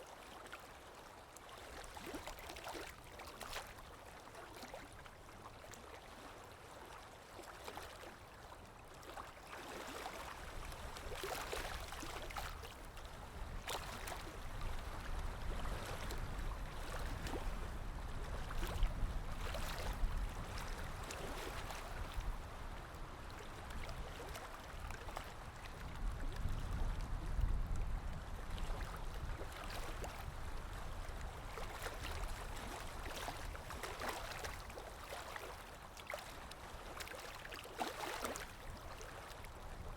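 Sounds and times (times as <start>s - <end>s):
water lapping: 0.0s - 39.9s.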